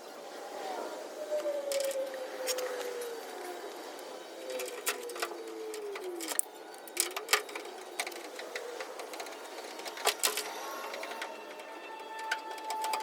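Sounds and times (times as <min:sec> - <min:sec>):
faint falling squeaks: 0:04.4 - 0:13.0.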